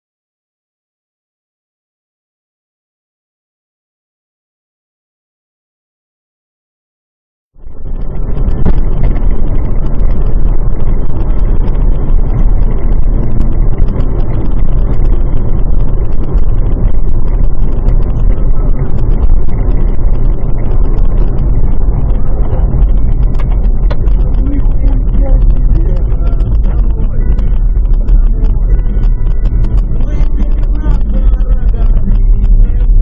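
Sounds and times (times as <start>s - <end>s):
car engine and road rumble: 7.6s - 33.0s.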